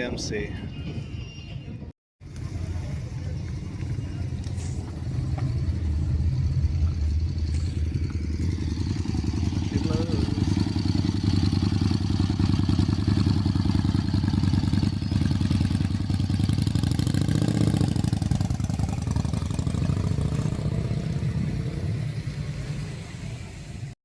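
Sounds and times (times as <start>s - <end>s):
motorcycle engine running: 2.2s - 23.9s.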